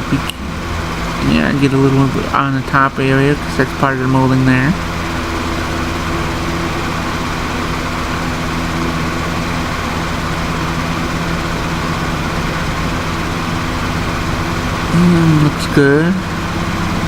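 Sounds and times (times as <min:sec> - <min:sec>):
machine hum: 0:00.0 - 0:17.0
even hiss: 0:14.8 - 0:16.4.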